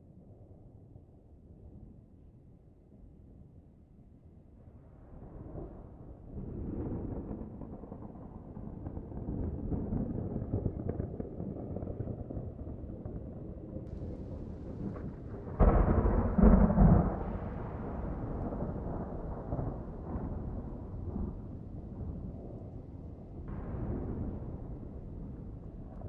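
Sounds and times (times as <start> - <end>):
distant thunder rumble: 6.4 - 26.0
loud thunderclap: 13.9 - 22.8, 23.4 - 26.0.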